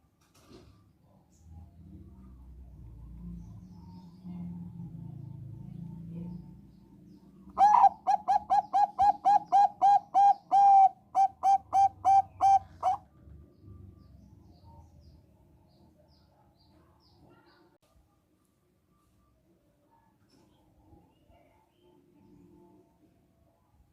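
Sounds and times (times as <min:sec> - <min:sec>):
dove cooing: 0:07.6 - 0:13.0.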